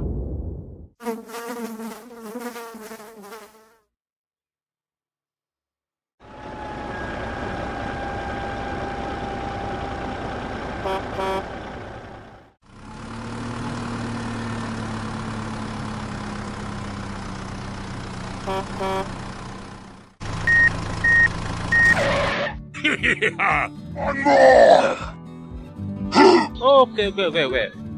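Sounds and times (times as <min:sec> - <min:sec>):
tractor engine running: 0:06.2 - 0:22.1
horn tooting: 0:10.6 - 0:12.0, 0:18.4 - 0:19.6, 0:21.7 - 0:22.6.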